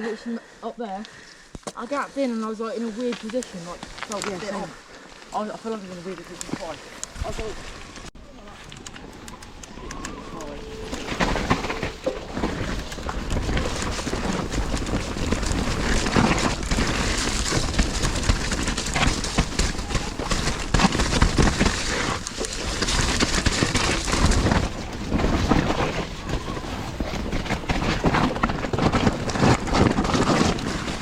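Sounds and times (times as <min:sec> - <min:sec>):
bike tyres rolling on trail: 0:01.1 - 0:31.0
bike knocks and rattles: 0:10.9 - 0:31.0.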